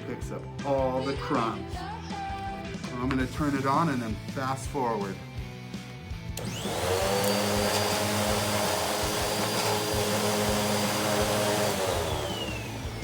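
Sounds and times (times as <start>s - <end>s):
vacuum cleaner motor whine: 6.4s - 13.0s.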